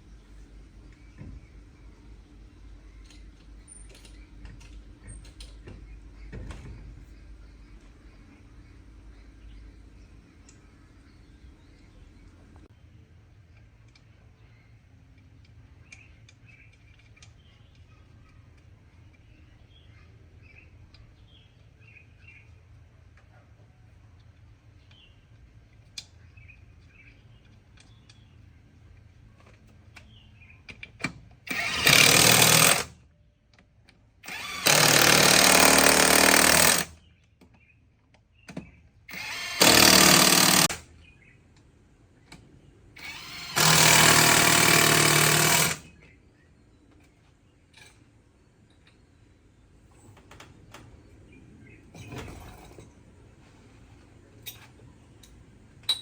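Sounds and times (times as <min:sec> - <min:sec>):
power tool running: 0:31.5 - 0:32.9, 0:34.2 - 0:36.9, 0:39.1 - 0:40.8, 0:43.0 - 0:45.9.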